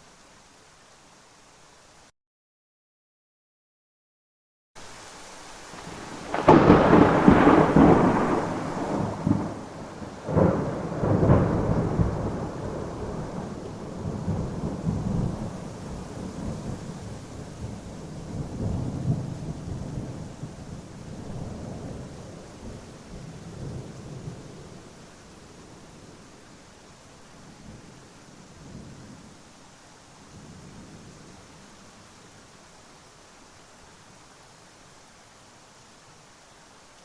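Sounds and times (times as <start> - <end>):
steady rain: 0.0 - 2.1, 4.8 - 37.0
thunder cracks and rumble: 5.8 - 24.6.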